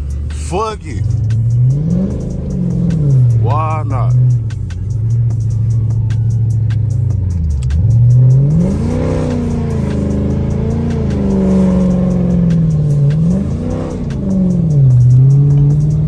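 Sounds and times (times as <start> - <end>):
car engine revving hard: 0.0 - 4.5, 7.8 - 16.0.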